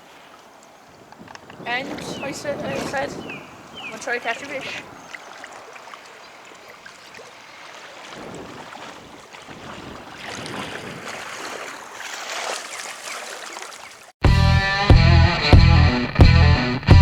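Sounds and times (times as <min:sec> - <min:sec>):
floodwater rushing: 0:00.0 - 0:14.2
wind on microphone: 0:00.7 - 0:05.2, 0:07.2 - 0:11.8.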